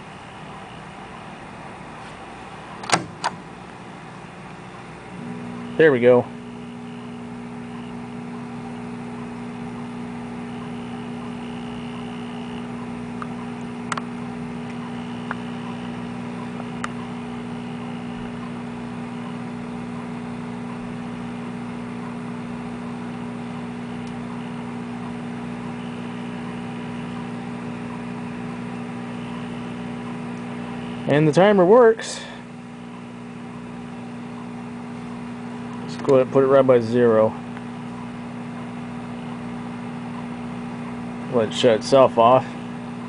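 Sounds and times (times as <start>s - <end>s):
microwave oven humming: 0.0s - 43.0s.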